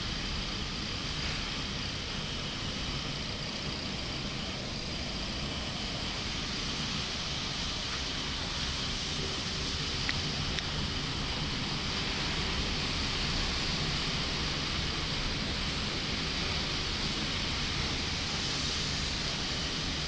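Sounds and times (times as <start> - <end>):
torrential rain: 6.0 - 20.0.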